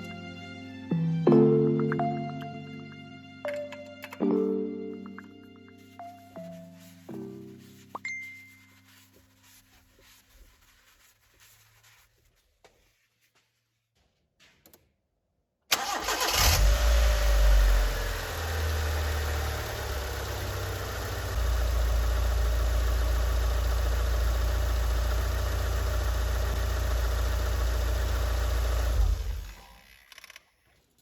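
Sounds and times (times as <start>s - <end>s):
car engine starting and idling: 15.7s - 29.9s.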